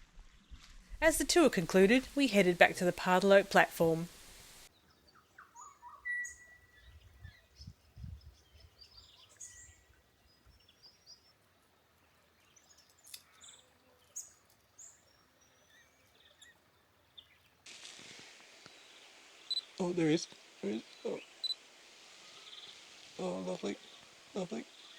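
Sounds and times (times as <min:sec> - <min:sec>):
steady hiss: 0:01.0 - 0:04.7, 0:17.6 - 0:24.9
small birds chirping: 0:01.1 - 0:24.9.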